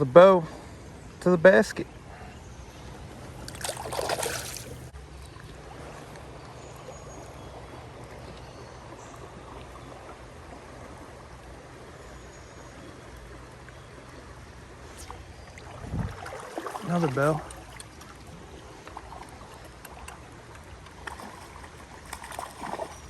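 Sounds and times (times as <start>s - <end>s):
creek rushing: 3.2s - 12.0s, 13.4s - 23.0s.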